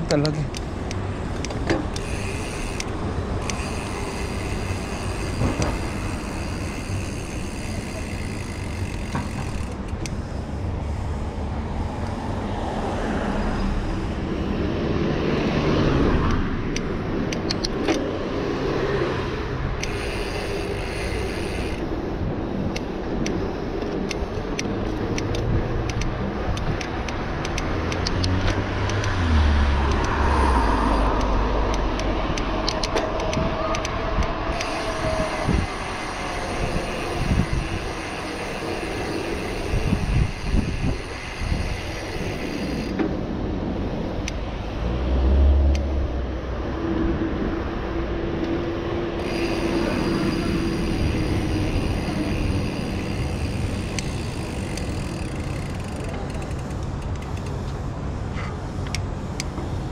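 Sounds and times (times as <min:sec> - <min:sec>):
bike clicks and rattles: 0:00.0 - 0:12.7, 0:13.4 - 0:44.5, 0:49.2 - 0:59.9
traffic going by: 0:00.0 - 0:59.9
tyre and road noise: 0:00.0 - 0:59.9
wind rush: 0:28.3 - 0:55.2.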